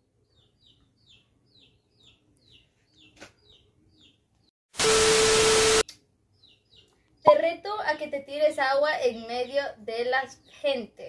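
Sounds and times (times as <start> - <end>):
small bird chirping: 0.2 - 4.5, 6.3 - 8.0.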